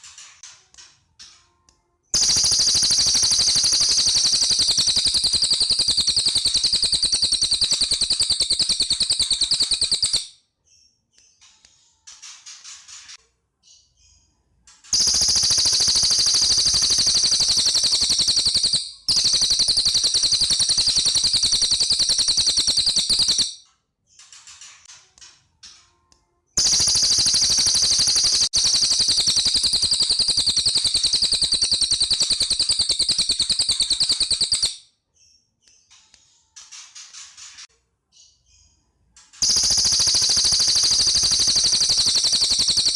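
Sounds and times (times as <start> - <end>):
soft bird chirping: 0.0 - 42.9
bird fast high trills: 15.0 - 23.6, 39.4 - 42.9.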